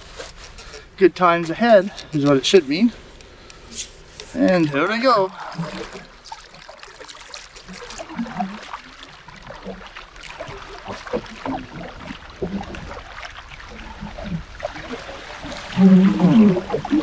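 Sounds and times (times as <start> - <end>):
paddle splashing in water: 4.2 - 17.0
water dripping: 4.3 - 17.0.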